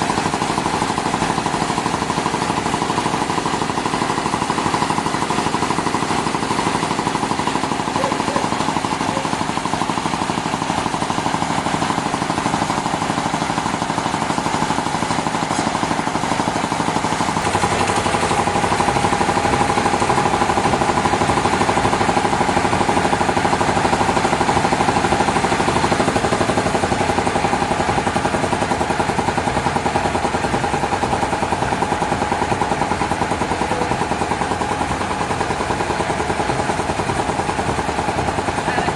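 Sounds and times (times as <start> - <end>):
sawmill machinery pulsing: 0.0 - 38.9.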